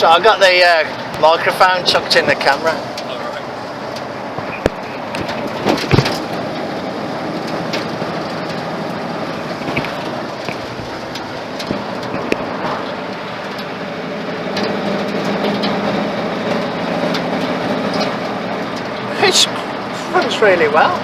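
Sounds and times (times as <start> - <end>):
road noise: 0.0 - 21.0
truck engine running: 0.0 - 21.0
wind noise: 1.0 - 16.5.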